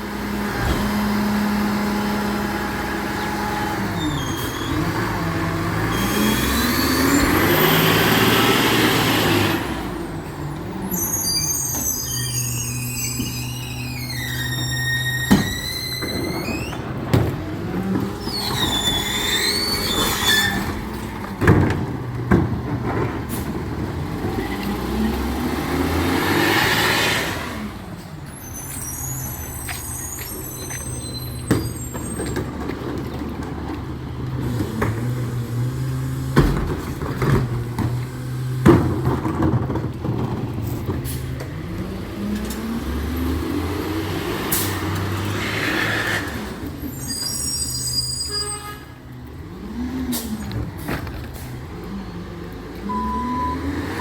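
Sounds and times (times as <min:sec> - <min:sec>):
diesel engine running: 0:00.0 - 0:47.8
high squeal: 0:03.2 - 0:05.1, 0:05.8 - 0:08.6, 0:10.8 - 0:16.9, 0:18.2 - 0:20.8, 0:28.3 - 0:32.5, 0:46.9 - 0:48.9.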